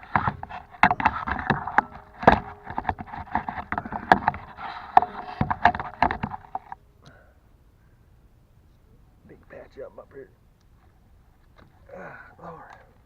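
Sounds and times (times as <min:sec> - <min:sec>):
close rustling: 0:00.0 - 0:06.8
sharp clicks and knocks: 0:00.0 - 0:06.8.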